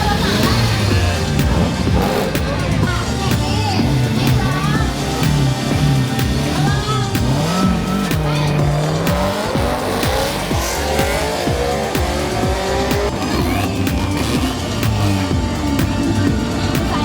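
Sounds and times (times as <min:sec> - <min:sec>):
background music: 0:00.0 - 0:17.0
race car engine revving: 0:00.0 - 0:17.0.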